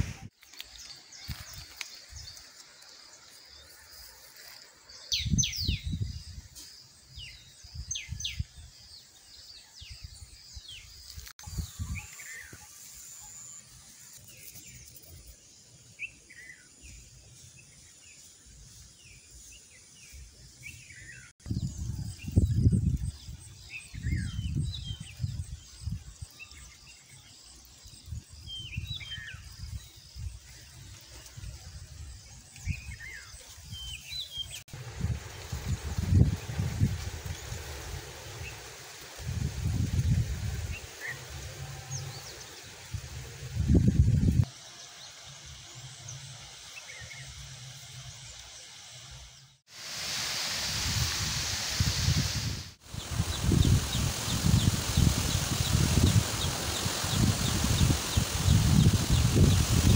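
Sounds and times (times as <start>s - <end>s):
small birds chirping: 0.0s - 49.6s, 51.8s - 59.9s
wind buffeting microphone: 5.1s - 6.5s, 21.4s - 26.2s, 34.7s - 44.5s, 50.5s - 59.9s
high pulsing insect trill: 52.8s - 59.9s.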